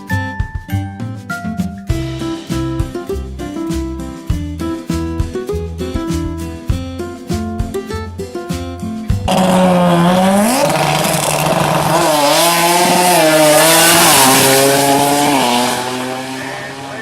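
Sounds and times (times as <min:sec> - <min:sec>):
guitar music: 0:00.0 - 0:17.0
car engine revving hard: 0:09.3 - 0:17.0.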